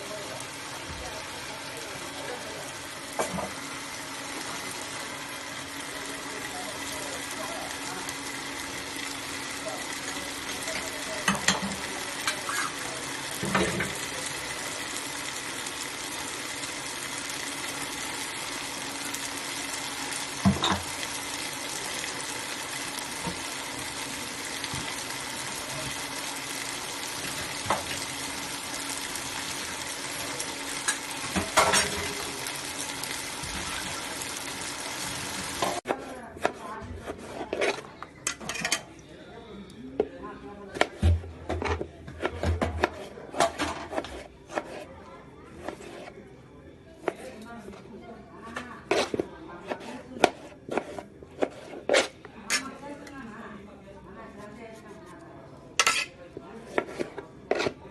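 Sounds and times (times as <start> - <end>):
food sizzling in a pot: 0.0 - 35.9.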